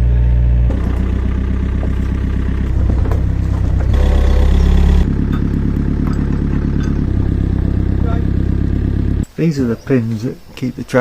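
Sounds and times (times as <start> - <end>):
excavator diesel engine running: 0.1 - 9.3
light metallic clanks: 5.2 - 7.7.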